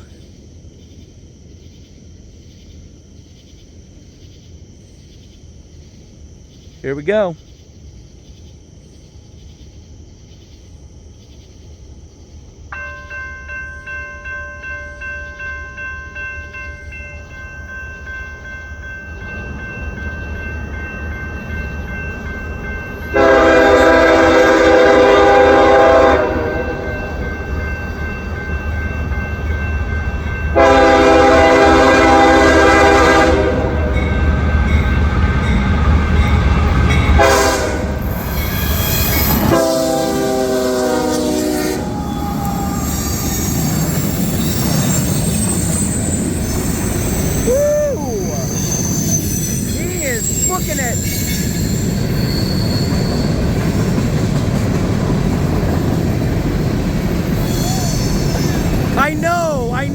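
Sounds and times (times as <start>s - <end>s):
crossing warning bell ringing: 12.7s - 40.0s, 41.5s - 54.2s
locomotive horn blasts: 23.1s - 26.9s, 30.5s - 34.0s, 37.1s - 38.1s, 39.4s - 41.8s
diesel locomotive rumble: 39.3s - 59.9s.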